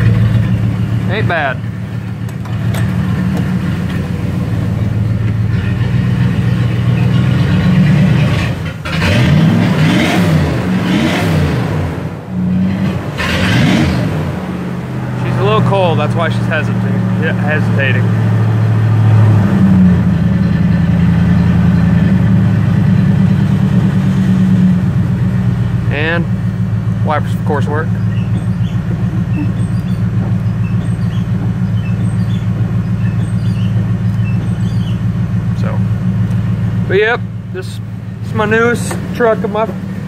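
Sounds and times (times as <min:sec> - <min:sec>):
truck engine idling: 0:00.0 - 0:09.7, 0:11.6 - 0:40.0.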